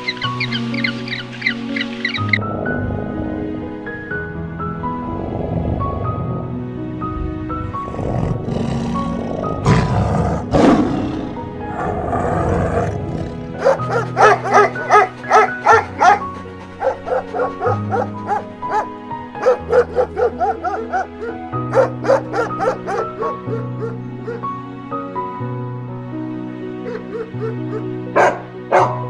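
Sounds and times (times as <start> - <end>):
soft background music: 0.0 - 29.0
animal growl: 5.0 - 6.6, 7.6 - 18.4.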